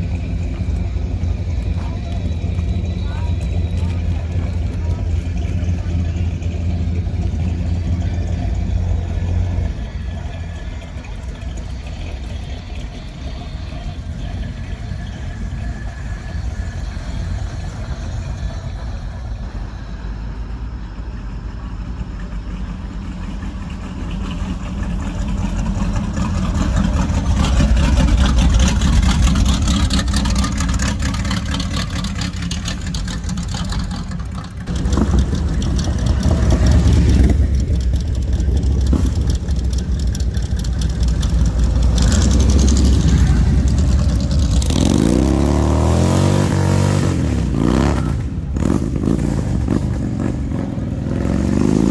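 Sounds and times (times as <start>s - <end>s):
car engines rumbling: 0.0s - 51.9s.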